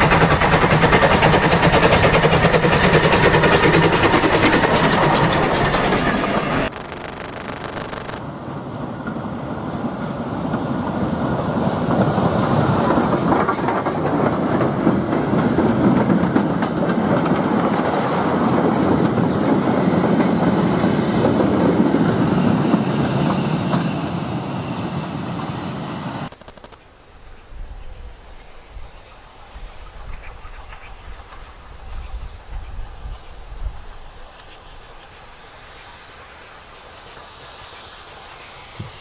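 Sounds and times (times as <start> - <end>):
train wheels clattering over rail joints: 0.0 - 6.7, 11.9 - 24.4.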